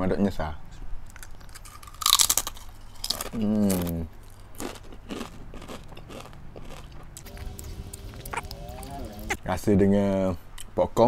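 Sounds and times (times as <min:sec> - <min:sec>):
chips being crunched: 0:01.2 - 0:08.0
person humming mmm: 0:07.2 - 0:09.4.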